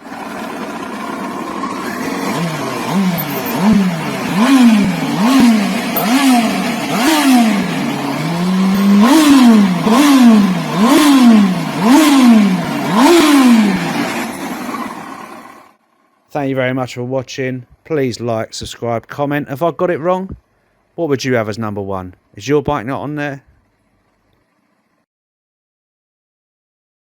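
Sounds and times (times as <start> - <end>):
motorcycle engine revving: 0.0 - 15.8.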